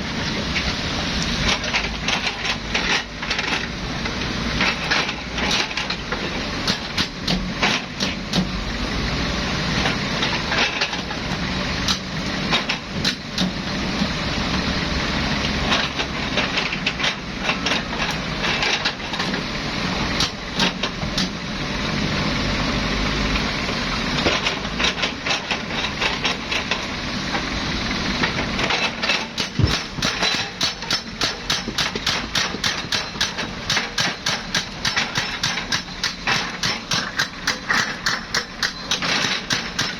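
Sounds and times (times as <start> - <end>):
excavator diesel engine running: 0.0 - 39.9
rock and metal clanking: 28.2 - 39.9.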